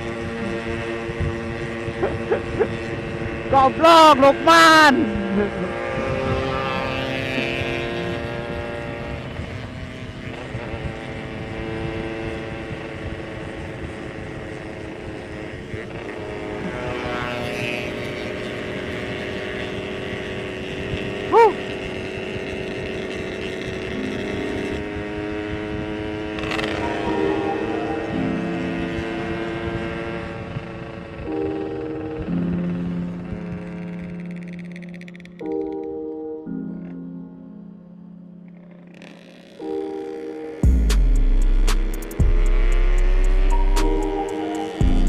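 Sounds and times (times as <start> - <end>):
motorcycle engine running: 0.0 - 45.0
brief loud tone: 43.4 - 45.0.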